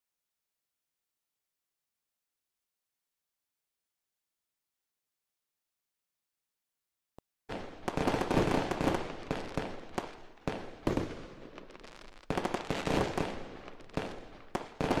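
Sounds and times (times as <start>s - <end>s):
fireworks bangs and crackling pops: 7.5s - 15.0s.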